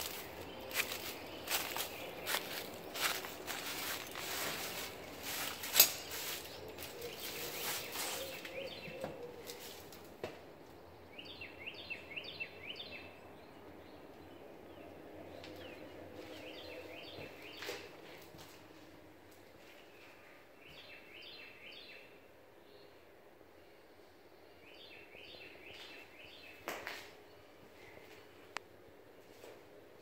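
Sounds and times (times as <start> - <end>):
footsteps: 0.0 - 10.0
handling noise: 0.0 - 10.1.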